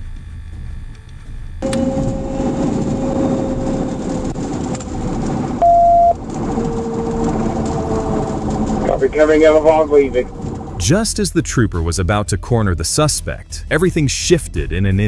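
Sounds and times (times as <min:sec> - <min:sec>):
road and engine noise: 0:00.0 - 0:11.9
steady whine falling in pitch: 0:01.6 - 0:10.0
short loud beep: 0:05.6 - 0:06.2.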